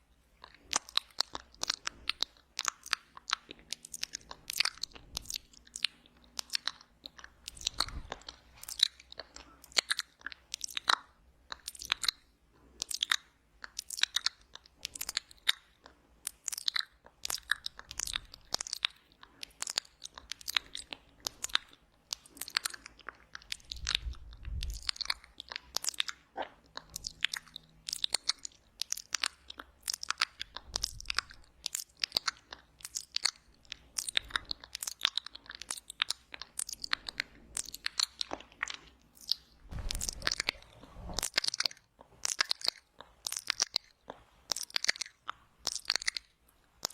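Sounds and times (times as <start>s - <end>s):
lip smacks and tongue clicks: 0.0s - 46.9s
low rumbles: 39.7s - 41.3s.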